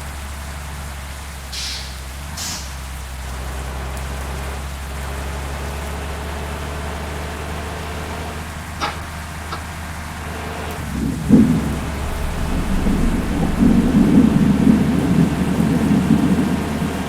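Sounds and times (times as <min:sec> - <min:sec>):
bus engine drone: 0:00.0 - 0:17.0
heavy rain: 0:00.0 - 0:17.0
short hisses: 0:01.5 - 0:02.9.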